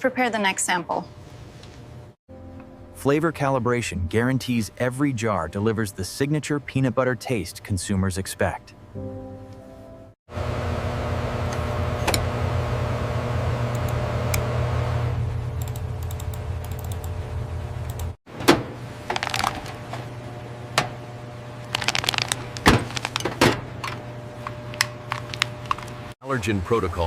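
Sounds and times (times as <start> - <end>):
factory machinery humming: 10.3 - 27.0.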